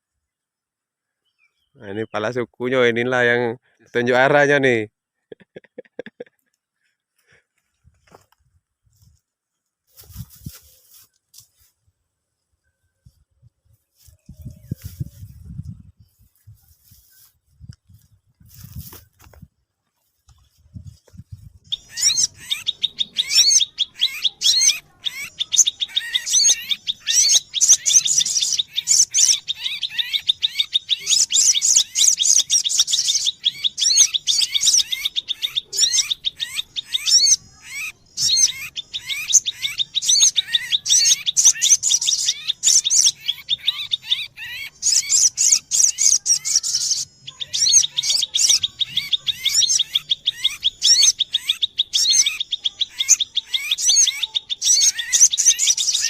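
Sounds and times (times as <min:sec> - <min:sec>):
sunbird chirping: 0:00.0 - 0:04.5, 0:19.6 - 0:56.0.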